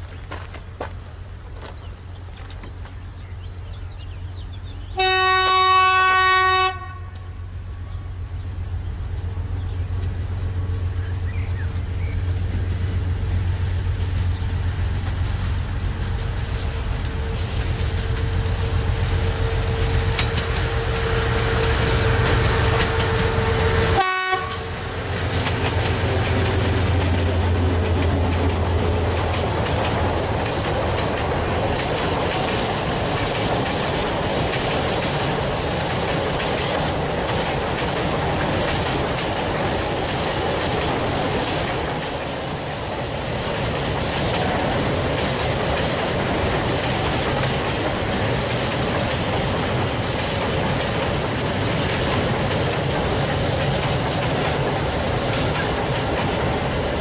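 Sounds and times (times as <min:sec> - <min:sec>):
train wheels rolling on rails: 0:00.0 - 0:57.0
locomotive horn blast: 0:05.0 - 0:07.4, 0:19.2 - 0:25.1.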